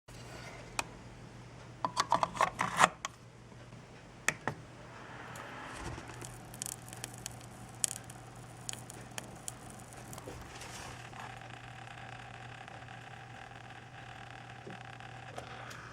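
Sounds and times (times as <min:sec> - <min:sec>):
low electrical buzz: 0:02.7 - 0:15.9
sharp crackling clicks: 0:05.4 - 0:15.8.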